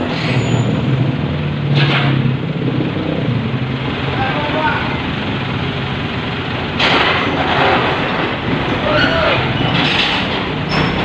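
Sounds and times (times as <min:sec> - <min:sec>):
excavator diesel engine under load: 0:00.0 - 0:11.0
short metallic squeals: 0:00.1 - 0:00.8, 0:08.8 - 0:11.0
tracks grinding over metal deck: 0:05.0 - 0:11.0.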